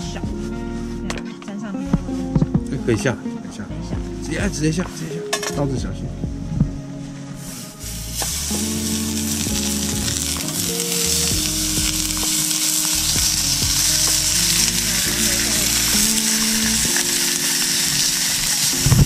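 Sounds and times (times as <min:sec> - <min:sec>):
background music: 0:00.0 - 0:19.0
meat sizzling in a frying pan: 0:07.5 - 0:19.0.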